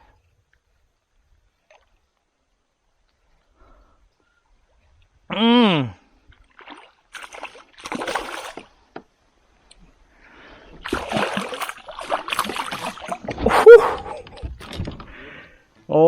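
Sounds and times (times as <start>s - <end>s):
water splashing beside a kayak: 6.2s - 15.5s.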